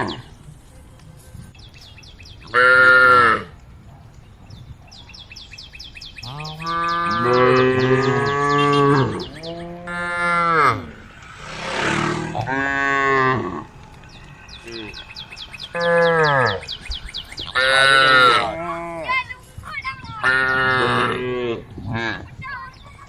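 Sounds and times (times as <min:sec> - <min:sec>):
cows mooing: 0:06.2 - 0:14.0, 0:14.6 - 0:16.8, 0:17.4 - 0:19.1, 0:20.2 - 0:22.2.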